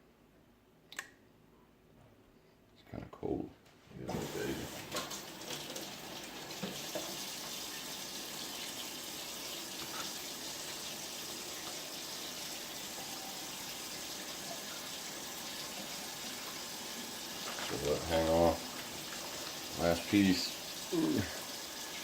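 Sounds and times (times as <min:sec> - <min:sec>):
tap running into a sink: 0:04.1 - 0:08.8.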